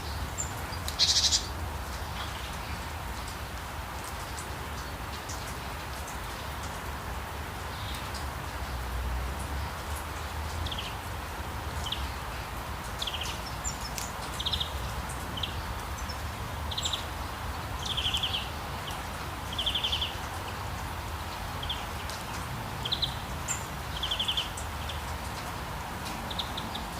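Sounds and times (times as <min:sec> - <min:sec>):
birds chirping and trilling: 0:00.0 - 0:02.9
steady rain hiss: 0:00.0 - 0:26.9.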